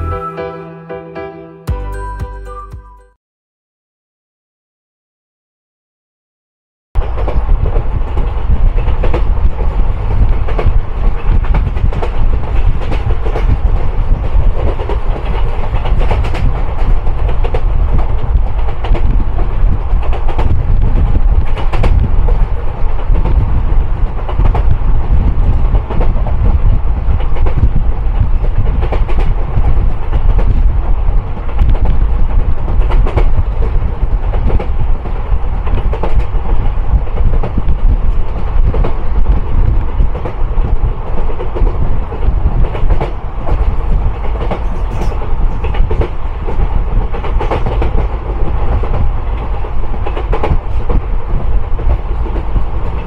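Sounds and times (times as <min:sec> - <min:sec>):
train wheels rumbling on track: 0:07.0 - 0:53.0
wheels clattering over rails: 0:41.1 - 0:53.0.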